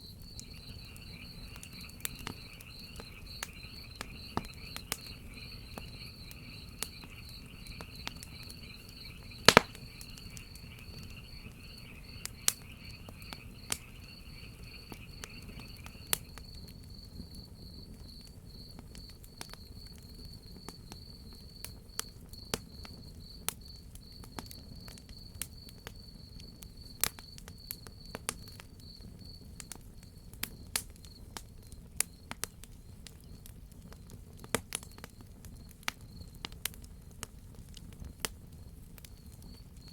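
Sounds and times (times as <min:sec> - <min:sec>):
lower insect chirring chorus: 0:00.0 - 0:24.2
crickets chirping: 0:00.0 - 0:34.2, 0:34.8 - 0:36.4, 0:38.6 - 0:39.9
wood fire crackling and popping: 0:00.0 - 0:39.9.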